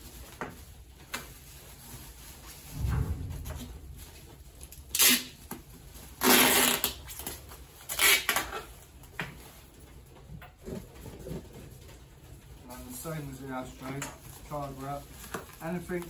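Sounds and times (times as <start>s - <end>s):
bubble wrap and card crinkling: 0.0s - 2.8s, 4.2s - 16.0s.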